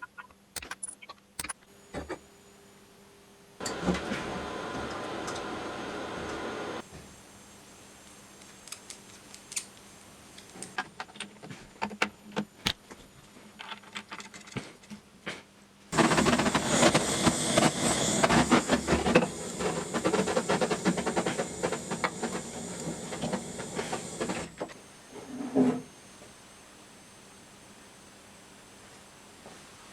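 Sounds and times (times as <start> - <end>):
air gun rapid clicking: 0.6 - 1.6
scattered clicks and knocks: 0.6 - 1.6, 16.0 - 24.8
compressed air rushing: 3.7 - 6.8, 16.0 - 24.7.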